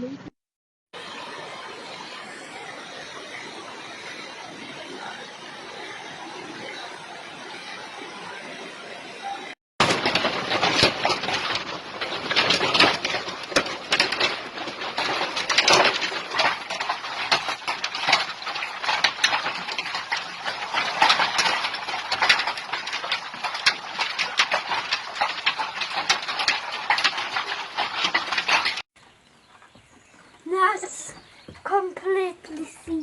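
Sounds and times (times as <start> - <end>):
hailstones clattering: 9.8 - 28.9.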